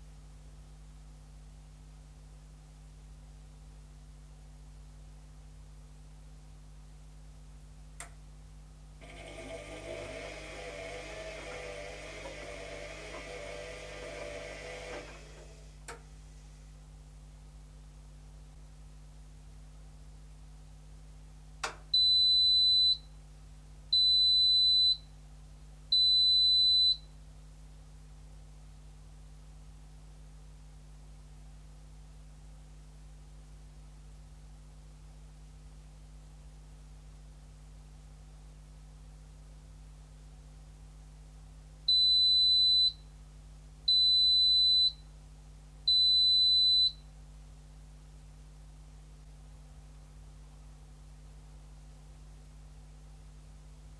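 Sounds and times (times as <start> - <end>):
washing machine buzzer beeps: 22.0 - 23.1, 23.9 - 25.0, 25.9 - 27.1, 41.9 - 43.0, 43.9 - 45.0, 45.9 - 47.0.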